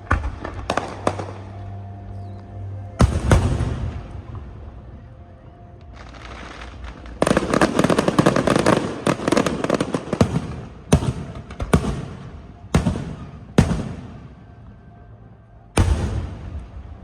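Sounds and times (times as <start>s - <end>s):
fireworks crackling: 5.8s - 14.3s
fireworks bangs with echo: 6.4s - 14.5s, 15.8s - 17.0s.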